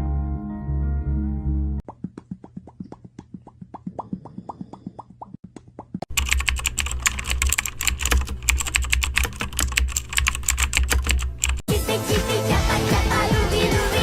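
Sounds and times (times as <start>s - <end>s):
fast keyboard typing: 6.0s - 11.7s
pop music: 11.7s - 14.0s.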